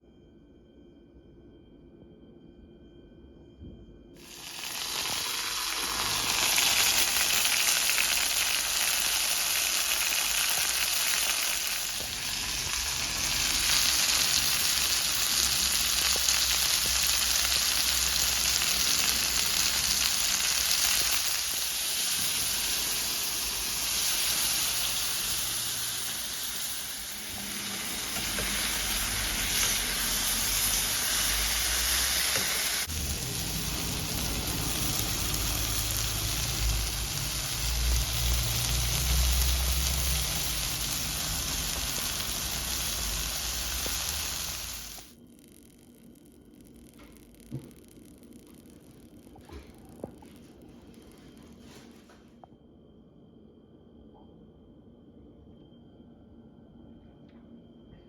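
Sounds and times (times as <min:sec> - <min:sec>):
food sizzling in a hot pan: 0:04.2 - 0:45.2.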